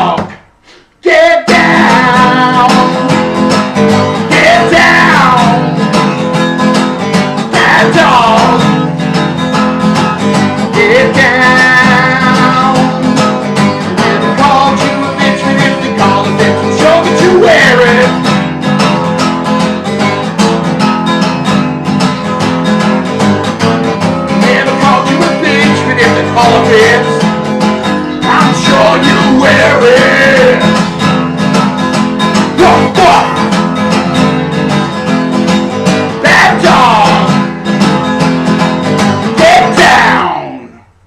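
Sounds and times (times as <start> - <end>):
man singing: 0.0 - 0.4, 1.0 - 6.0, 7.4 - 8.8, 10.6 - 18.3, 24.3 - 27.4, 28.2 - 31.0, 32.4 - 33.6, 35.9 - 37.8, 39.2 - 40.8
acoustic guitar strumming: 0.0 - 41.0.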